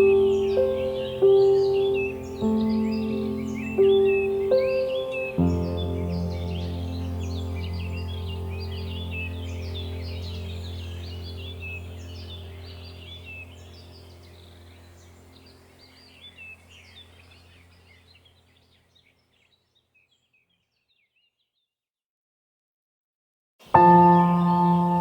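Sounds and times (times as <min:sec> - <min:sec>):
low steady drone: 0:00.0 - 0:17.7
birds chirping: 0:00.0 - 0:21.4, 0:23.6 - 0:25.0.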